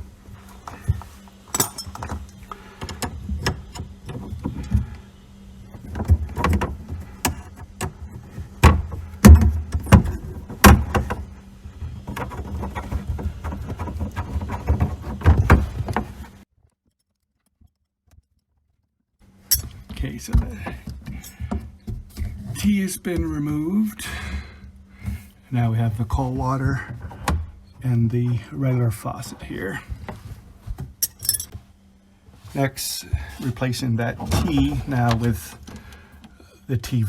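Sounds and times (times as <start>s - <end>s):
faint steady hum: 0.0s - 16.5s, 19.2s - 37.0s
metal fittings and tools clinking: 1.5s - 3.0s, 19.5s - 19.8s, 31.0s - 31.5s.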